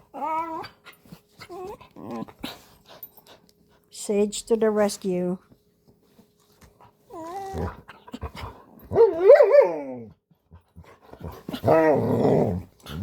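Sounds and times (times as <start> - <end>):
dog whining: 0.0 - 2.6, 7.1 - 7.9, 8.9 - 10.1.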